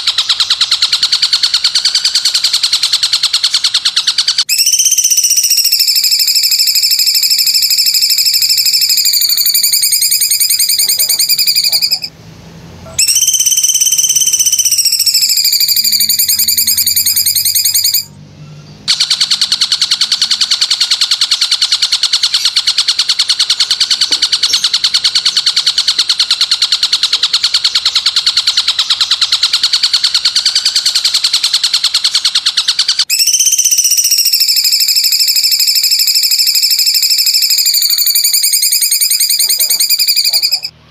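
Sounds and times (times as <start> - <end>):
animal caller trills: 0.0 - 12.2, 12.9 - 18.2, 18.9 - 40.8.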